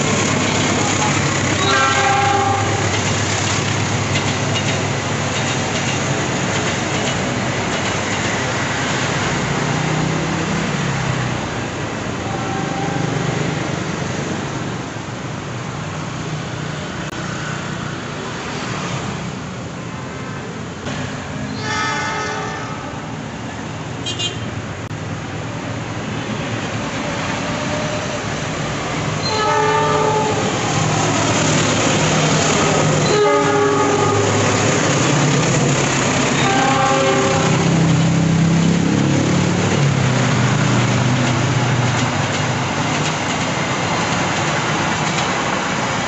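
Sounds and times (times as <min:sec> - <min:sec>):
locomotive engine and wheel noise: 0:00.0 - 0:46.0
train horn blasts: 0:01.6 - 0:03.0, 0:12.2 - 0:13.2, 0:21.5 - 0:23.1, 0:29.2 - 0:30.6, 0:33.0 - 0:34.4, 0:36.4 - 0:37.8.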